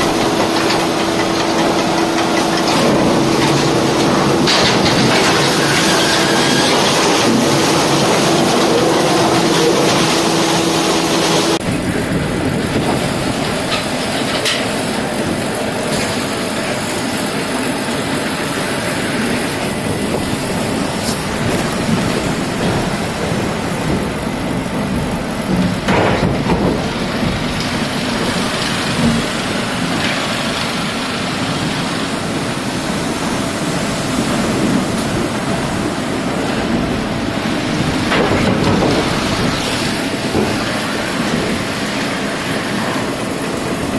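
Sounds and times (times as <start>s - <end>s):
mechanical knocks and clatter: 0.0s - 11.6s, 12.7s - 16.8s, 19.4s - 30.8s, 37.6s - 43.9s
sawmill machinery din: 0.0s - 43.9s.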